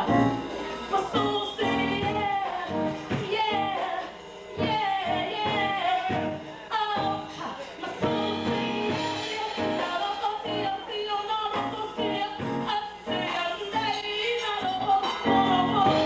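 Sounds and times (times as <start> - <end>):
instrumental accompaniment: 0.0 - 7.4
woman singing: 0.9 - 16.0.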